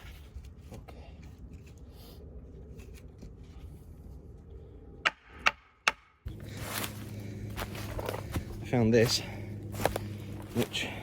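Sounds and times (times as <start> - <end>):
hammer knocking wooden stake: 5.0 - 6.2.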